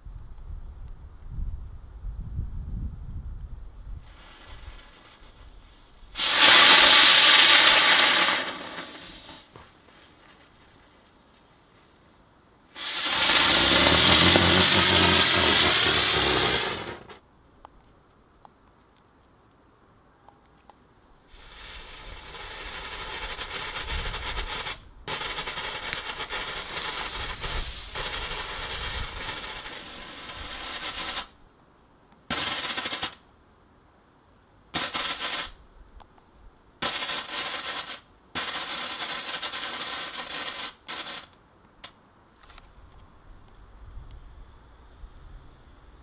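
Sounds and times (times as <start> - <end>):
firework crackling pops: 4.0 - 11.5, 12.7 - 17.2, 21.3 - 31.4, 32.3 - 33.2, 34.8 - 35.6, 36.8 - 42.0.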